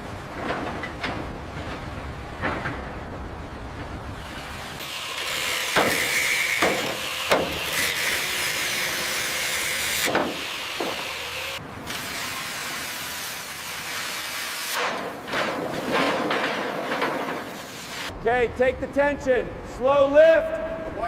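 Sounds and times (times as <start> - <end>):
sharp knocks: 5.7 - 7.9, 9.9 - 11.2.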